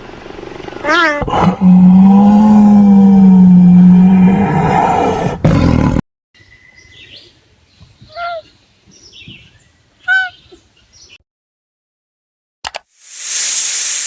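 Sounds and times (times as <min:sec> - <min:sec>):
loud low animal call: 0:00.9 - 0:06.0.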